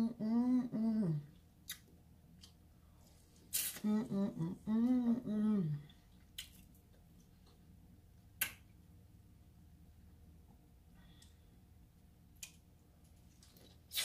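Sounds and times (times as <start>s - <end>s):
woman humming: 0.0s - 1.4s, 3.8s - 5.9s.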